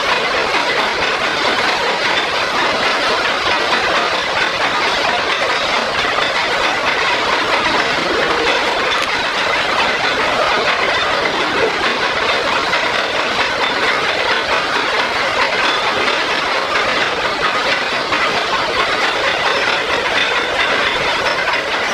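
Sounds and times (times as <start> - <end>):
metal lathe cutting: 0.0 - 21.9.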